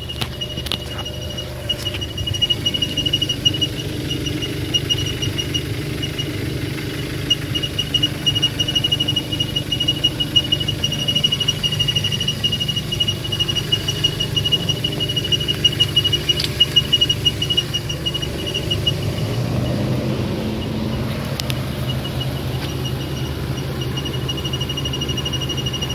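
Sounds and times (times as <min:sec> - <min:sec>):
high-pitched chirping squeak: 0:00.0 - 0:25.9
vehicle engine idling: 0:00.0 - 0:25.9.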